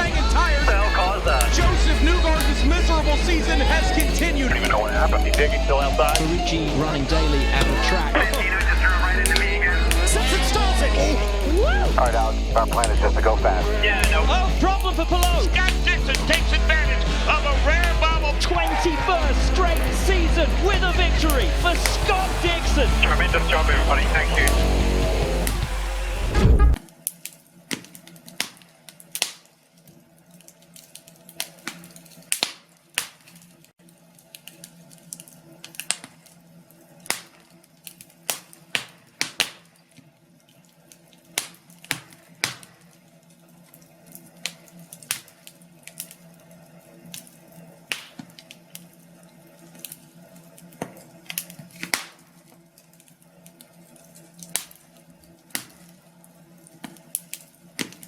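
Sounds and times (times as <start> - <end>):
faint low hum: 0.0 - 26.8
wood fire crackling: 0.0 - 58.0.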